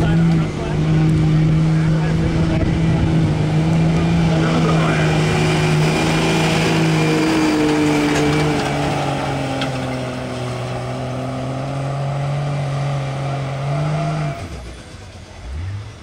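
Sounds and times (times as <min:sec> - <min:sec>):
diesel pickup engine under load: 0:00.0 - 0:16.0.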